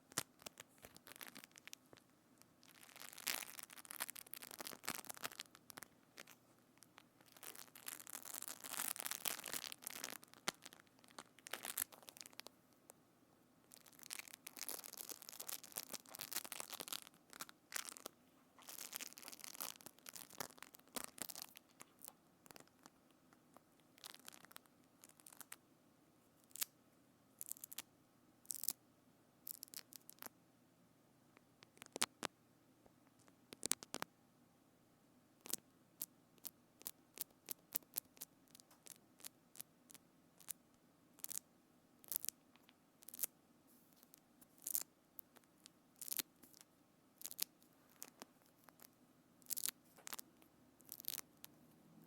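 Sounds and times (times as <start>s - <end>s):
scratchy crackling handling noise: 0.0s - 13.0s, 13.7s - 25.6s, 42.1s - 51.5s.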